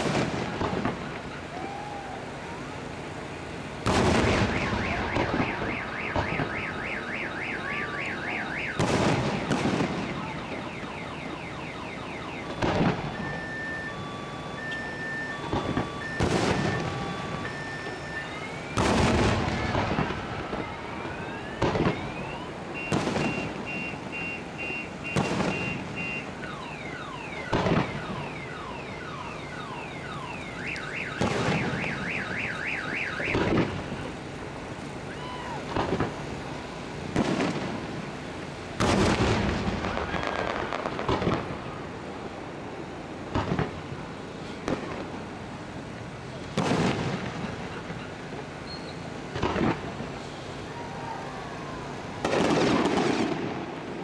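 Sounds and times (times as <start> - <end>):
fireworks bursting in bangs: 0.0 - 1.4, 3.8 - 6.7, 8.5 - 10.7, 12.4 - 13.6, 15.4 - 18.0, 18.6 - 26.4, 27.4 - 28.2, 31.1 - 32.0, 33.2 - 34.2, 35.6 - 36.3, 37.1 - 38.2, 38.8 - 41.8, 43.3 - 43.9, 44.6 - 45.2, 46.5 - 48.0, 49.2 - 50.2, 52.2 - 54.0
car alarm beeps and whoops: 4.4 - 8.9, 9.8 - 34.1, 35.1 - 35.7.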